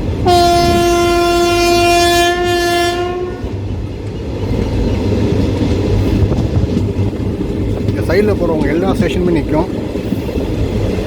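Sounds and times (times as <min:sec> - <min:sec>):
train rumble: 0:00.0 - 0:11.0
locomotive horn: 0:00.2 - 0:03.6.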